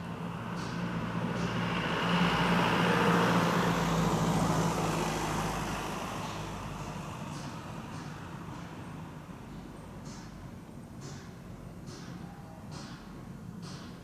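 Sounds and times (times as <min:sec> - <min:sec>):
vehicle passing by: 0:00.2 - 0:07.1.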